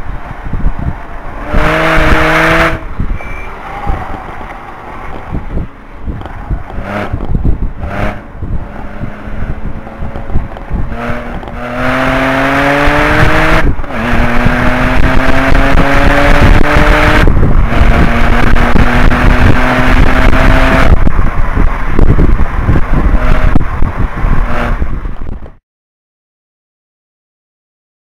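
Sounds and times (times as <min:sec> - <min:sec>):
wind and road noise: 0:00.0 - 0:25.6
car engine accelerating: 0:01.3 - 0:02.9, 0:05.2 - 0:25.0.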